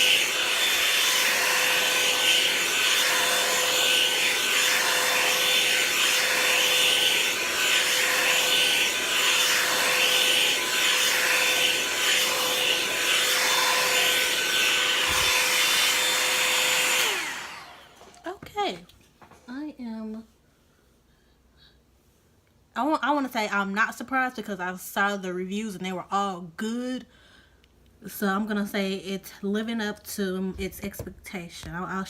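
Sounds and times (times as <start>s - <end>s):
blow dryer running: 0.0s - 18.2s.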